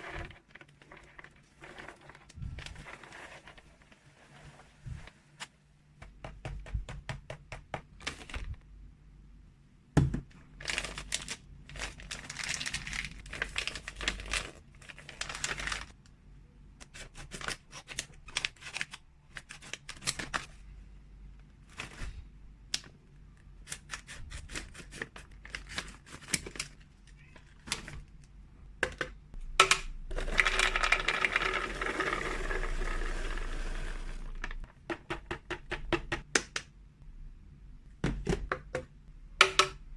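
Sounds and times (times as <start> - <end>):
plastic packaging crinkling: 10.6 - 16.0, 30.1 - 34.7.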